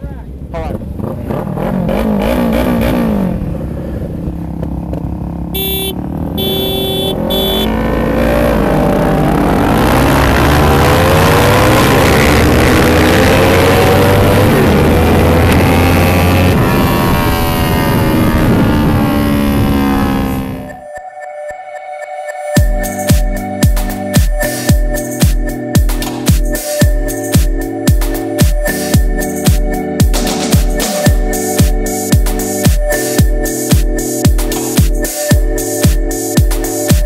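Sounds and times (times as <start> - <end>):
motorcycle engine accelerating: 0.5 - 20.8
short beeps: 5.6 - 7.8.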